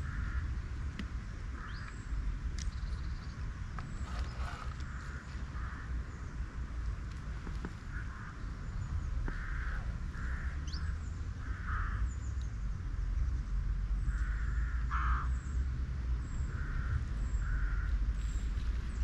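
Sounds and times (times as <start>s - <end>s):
steady low rumble: 0.0s - 19.0s
small birds chirping: 1.0s - 19.0s
birds making harsh calls: 3.8s - 6.4s.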